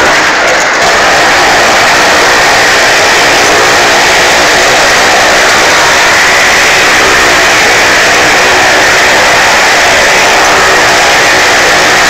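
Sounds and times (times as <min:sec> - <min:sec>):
car engines roaring: 0:00.0 - 0:12.0.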